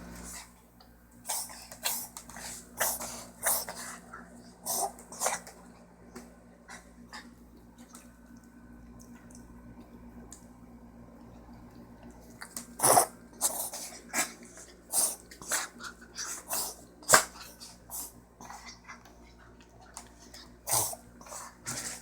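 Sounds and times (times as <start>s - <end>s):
dog coughing: 12.8s - 15.6s.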